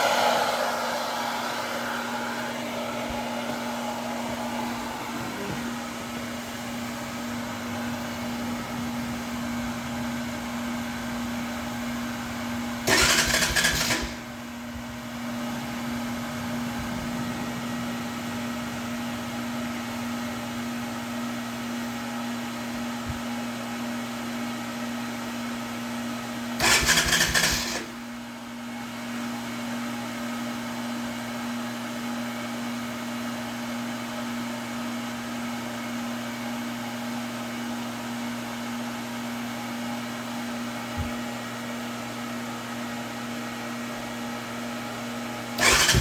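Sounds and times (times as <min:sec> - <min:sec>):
hair dryer whining: 0:00.0 - 0:08.6, 0:45.5 - 0:46.0
motorcycle engine starting: 0:11.5 - 0:17.6, 0:26.6 - 0:28.4, 0:45.6 - 0:46.0.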